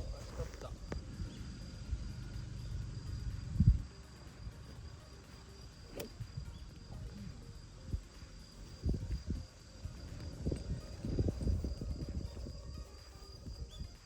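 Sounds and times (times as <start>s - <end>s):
wind buffeting microphone: 0.0s - 3.9s, 8.7s - 14.0s
faint insect drone: 0.0s - 14.0s
golf club striking ball: 5.9s - 6.5s.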